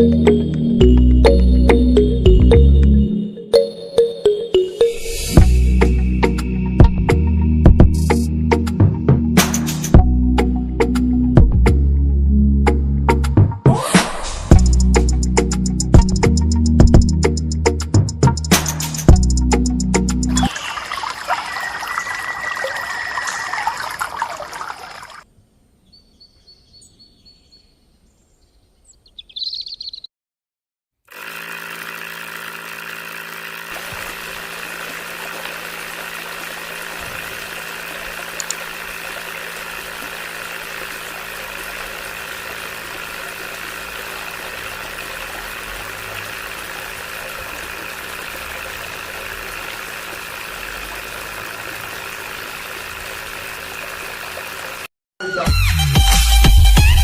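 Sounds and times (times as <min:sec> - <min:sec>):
background music: 0:00.0 - 0:20.5
water trickling: 0:20.3 - 0:25.3, 0:33.8 - 0:54.9
small electric motor whirring: 0:31.1 - 0:54.9.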